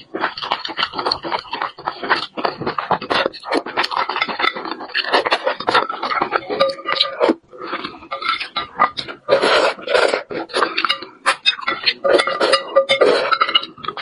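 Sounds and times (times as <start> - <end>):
wet chewing and lip-smacking: 0.0 - 14.0
chopsticks sucked: 9.3 - 13.4.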